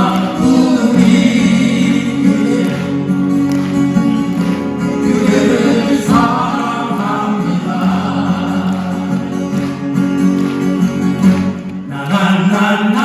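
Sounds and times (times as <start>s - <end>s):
male vocal quartet singing: 0.0s - 3.4s, 4.0s - 9.8s, 11.8s - 13.0s
acoustic guitars: 0.0s - 13.0s.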